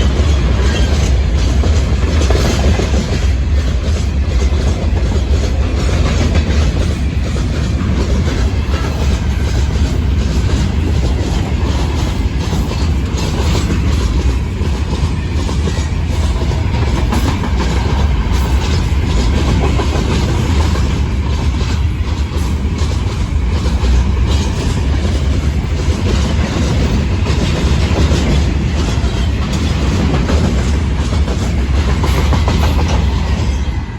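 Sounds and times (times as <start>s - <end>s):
deep train rumble: 0.0s - 33.9s
train wheels clattering over joints: 0.0s - 33.9s.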